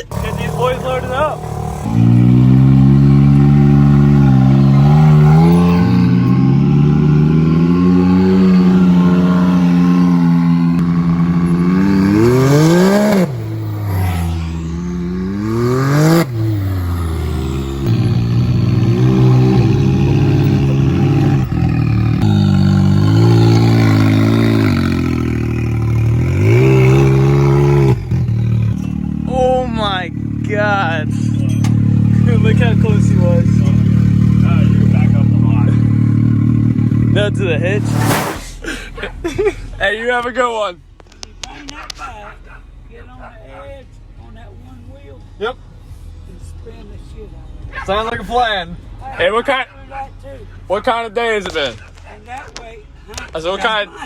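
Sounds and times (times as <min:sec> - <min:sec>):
engine revving: 0:00.0 - 0:29.4, 0:31.7 - 0:38.6.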